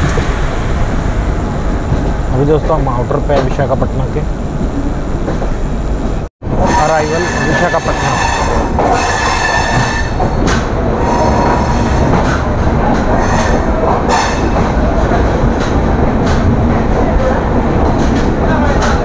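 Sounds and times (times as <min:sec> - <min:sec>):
train wheels rumbling on rails: 0:00.0 - 0:19.0
train brakes squealing: 0:06.6 - 0:10.4, 0:11.0 - 0:12.2, 0:13.1 - 0:14.6.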